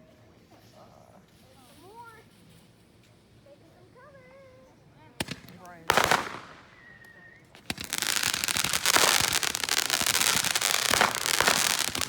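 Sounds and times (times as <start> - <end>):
fireworks crackling: 5.2 - 12.0.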